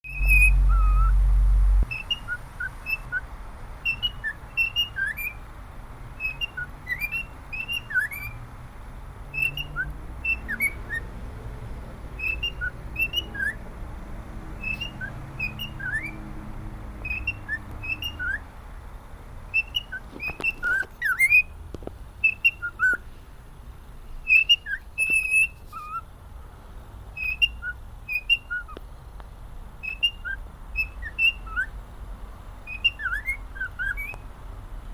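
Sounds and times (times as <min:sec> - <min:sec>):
loud low rumble: 0:00.0 - 0:01.9
cockatiel whistling: 0:00.1 - 0:01.2, 0:01.9 - 0:05.4, 0:06.2 - 0:08.4, 0:09.3 - 0:11.1, 0:12.2 - 0:13.6, 0:14.6 - 0:16.2, 0:17.0 - 0:18.5, 0:19.5 - 0:21.5, 0:22.2 - 0:23.0, 0:24.3 - 0:26.0, 0:27.2 - 0:28.8, 0:29.8 - 0:31.7, 0:32.7 - 0:34.2.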